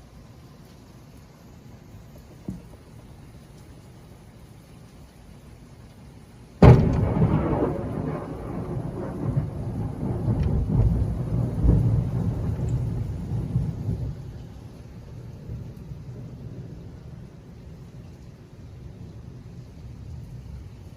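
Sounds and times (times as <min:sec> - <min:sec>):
thunder crack: 0:06.6 - 0:14.2
rolling thunder rumble: 0:06.6 - 0:20.9.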